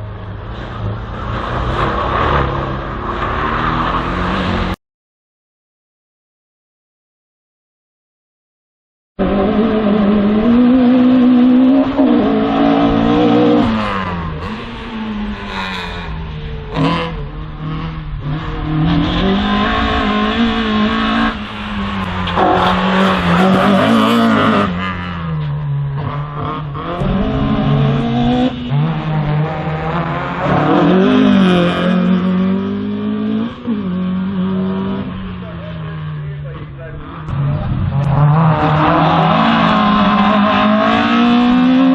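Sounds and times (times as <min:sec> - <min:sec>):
race car engine revving: 0:00.1 - 0:04.8, 0:09.2 - 0:41.9.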